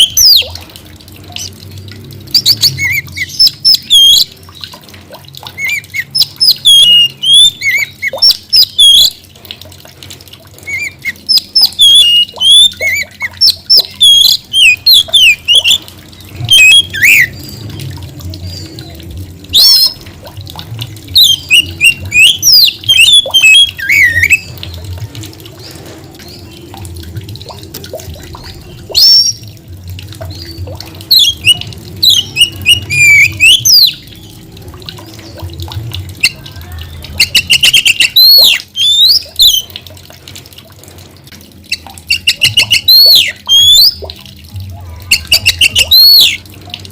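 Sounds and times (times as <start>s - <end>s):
bird singing whistles and chatter: 10.7s - 15.8s, 16.5s - 17.3s, 19.5s - 20.0s, 21.2s - 24.5s, 31.1s - 34.0s, 37.2s - 39.7s, 41.7s - 44.0s, 45.1s - 46.4s.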